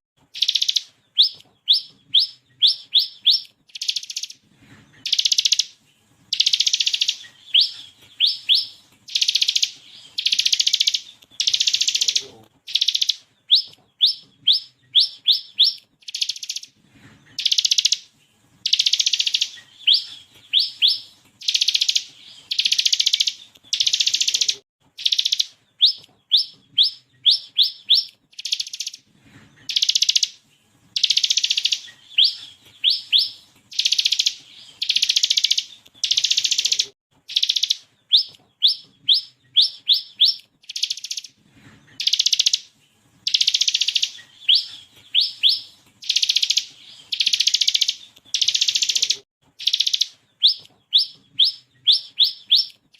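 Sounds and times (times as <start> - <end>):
bird whistled notes: 6.3 - 16.7.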